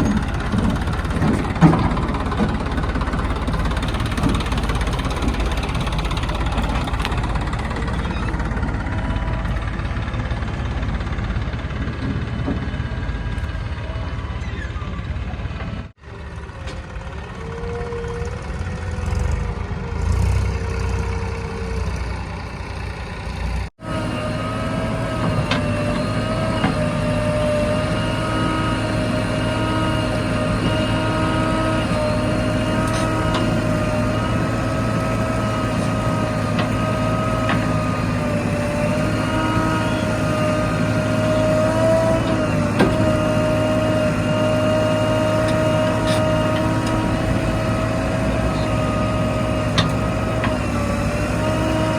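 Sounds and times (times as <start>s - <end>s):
heavy machinery diesel engine: 0.0s - 51.9s.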